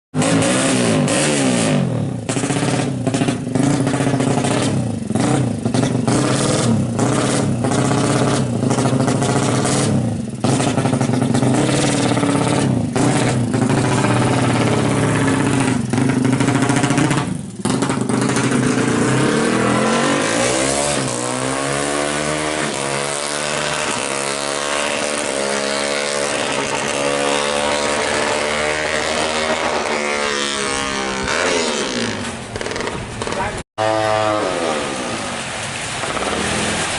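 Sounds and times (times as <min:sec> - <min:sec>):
motorcycle engine revving: 0:00.1 - 0:35.2.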